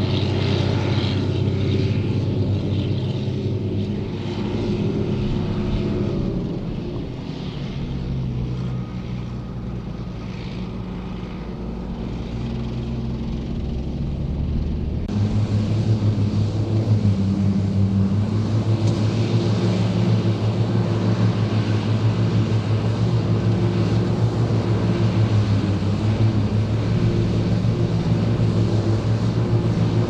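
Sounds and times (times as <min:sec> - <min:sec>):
forage harvester working: 0:00.0 - 0:30.0
tractor diesel engine running: 0:00.0 - 0:30.0.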